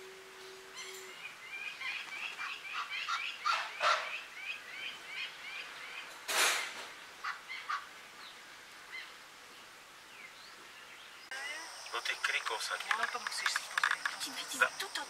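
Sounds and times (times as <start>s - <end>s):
bird calling: 0.3s - 9.2s.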